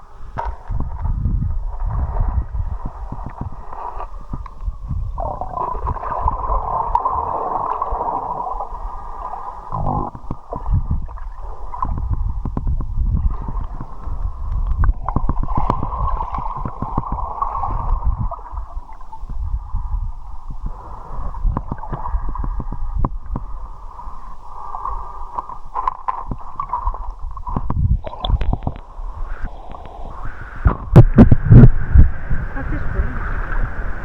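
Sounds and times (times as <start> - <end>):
low rumble: 0.0 - 25.1, 26.3 - 34.0
river water rushing and gurgling: 31.7 - 34.0.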